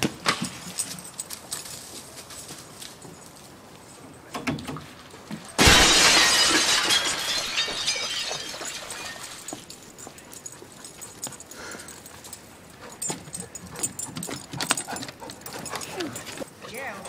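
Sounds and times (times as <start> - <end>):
glass tinkling and clinking: 5.4 - 17.0
glass breaking crash: 5.5 - 9.8.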